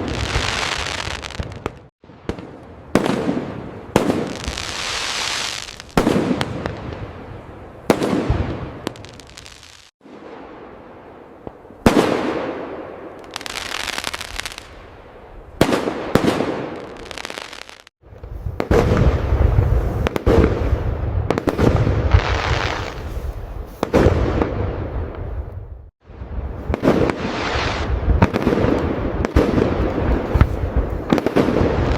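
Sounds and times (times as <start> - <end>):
firework bursts crackling: 0.0 - 1.8, 4.0 - 6.5, 26.6 - 31.9.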